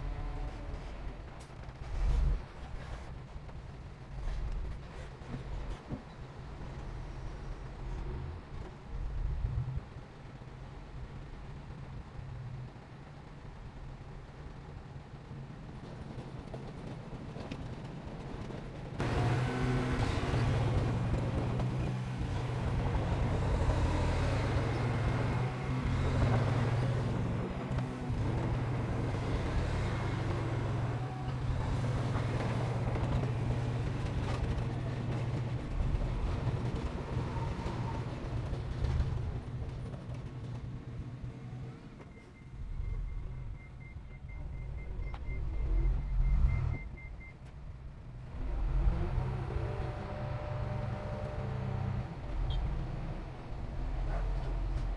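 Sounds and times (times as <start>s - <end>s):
diesel engine deep hum: 19.0s - 40.0s.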